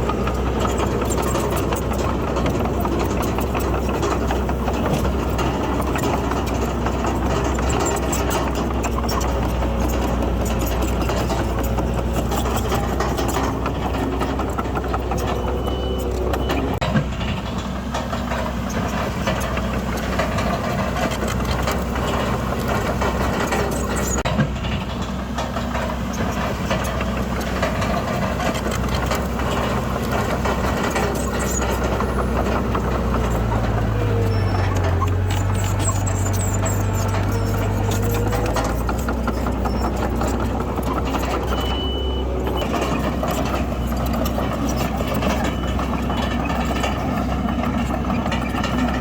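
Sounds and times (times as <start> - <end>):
heavy machinery diesel engine: 0.0 - 49.0
metal clanks: 0.0 - 49.0.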